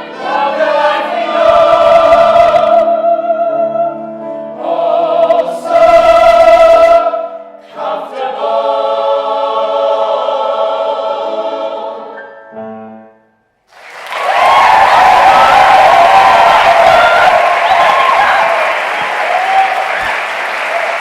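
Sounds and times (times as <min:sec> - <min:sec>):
choir singing held chords: 0:00.0 - 0:12.2
applause: 0:13.7 - 0:21.0.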